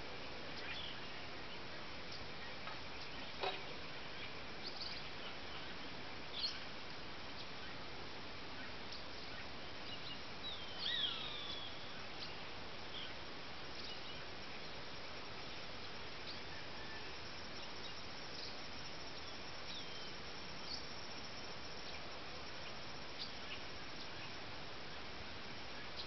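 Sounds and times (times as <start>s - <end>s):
background hiss: 0.0s - 26.0s
birds calling: 8.5s - 26.0s.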